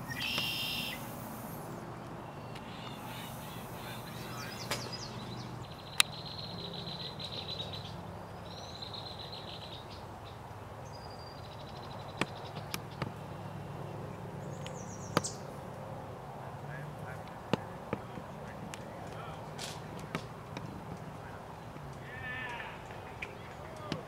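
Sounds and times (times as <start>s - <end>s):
small bird trilling: 0.0s - 1.7s
outdoor background noise: 0.0s - 24.0s.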